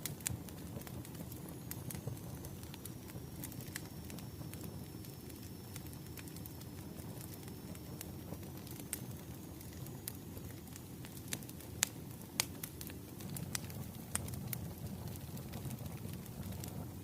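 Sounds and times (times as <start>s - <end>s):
bonfire crackling: 0.0s - 17.0s
sharp pops of burning wood: 11.0s - 16.7s.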